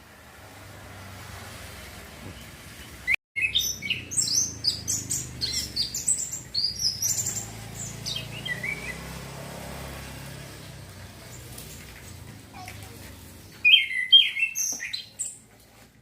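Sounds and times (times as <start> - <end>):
thrush singing: 3.4 - 12.3.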